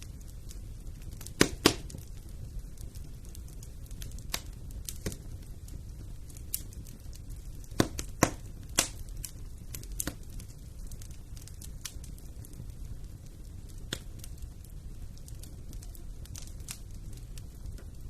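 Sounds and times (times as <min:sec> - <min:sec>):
low rumble of flames: 0:00.0 - 0:18.0
wood fire crackling and popping: 0:00.0 - 0:18.0.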